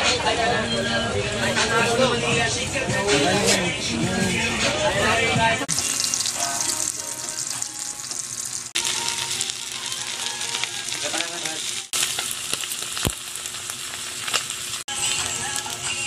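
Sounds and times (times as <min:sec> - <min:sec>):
fish sizzling in oil: 0:05.7 - 0:16.0.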